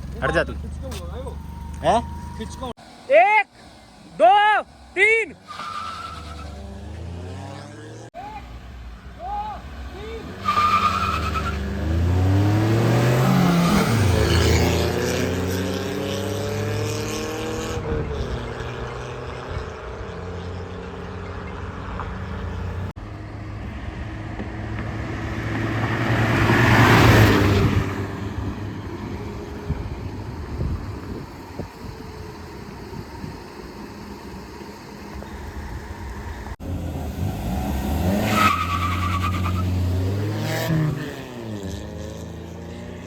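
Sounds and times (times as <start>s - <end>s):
car engine revving: 5.5s - 8.2s, 9.6s - 43.0s
car passing by: 23.7s - 28.8s.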